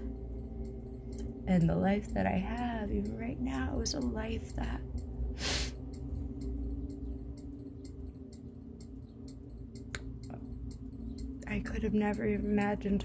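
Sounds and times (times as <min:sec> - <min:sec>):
faint ticks: 0:00.0 - 0:13.0
steady low hum: 0:00.0 - 0:13.0.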